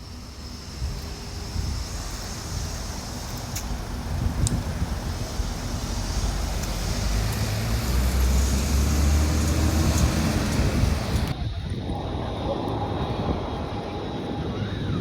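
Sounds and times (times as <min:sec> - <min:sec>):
road traffic noise: 0:00.0 - 0:11.4
vehicle engine passing: 0:00.8 - 0:11.3.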